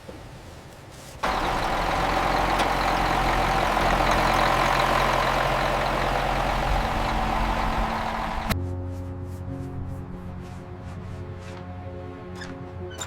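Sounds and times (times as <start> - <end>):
bulldozer diesel engine running: 1.2 - 8.6.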